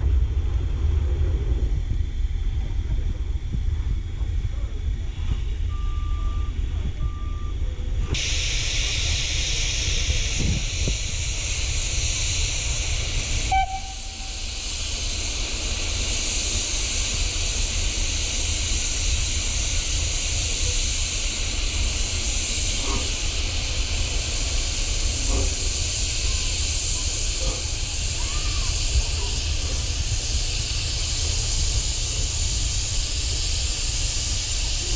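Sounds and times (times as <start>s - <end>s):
steam hissing: 0.0s - 6.9s, 7.9s - 34.9s
low rumble: 0.0s - 18.8s.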